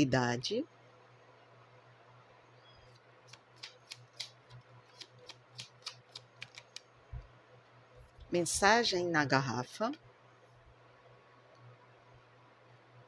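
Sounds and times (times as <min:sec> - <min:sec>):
cards snapping and tapping: 0:03.3 - 0:06.9.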